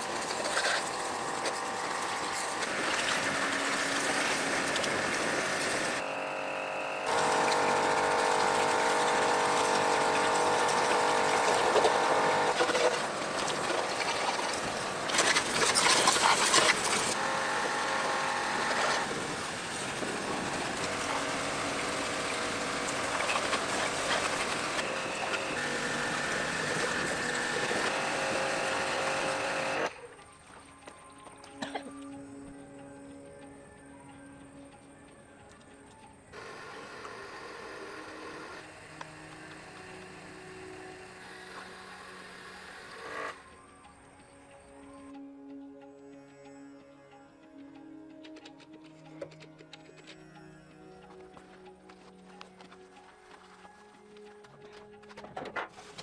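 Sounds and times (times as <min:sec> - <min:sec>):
pressure washer motor whirring: 0:00.0 - 0:30.0, 0:36.4 - 0:43.4
water jet hissing: 0:07.0 - 0:29.9.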